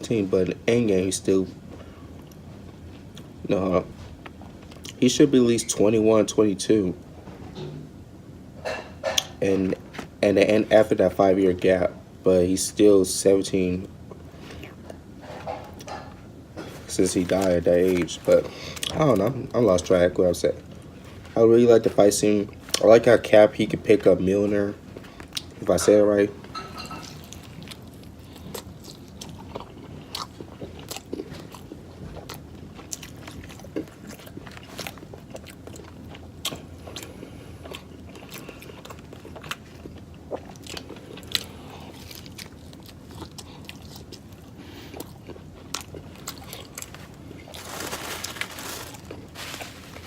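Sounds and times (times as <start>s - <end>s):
person chewing crunchy food: 14.1s - 16.0s, 16.6s - 19.4s, 27.0s - 50.0s.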